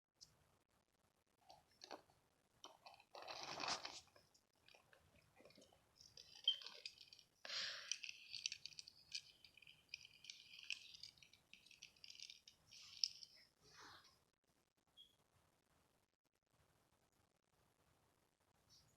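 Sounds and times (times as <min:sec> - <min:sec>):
crinkling and rustling handling noise: 0:01.4 - 0:14.2.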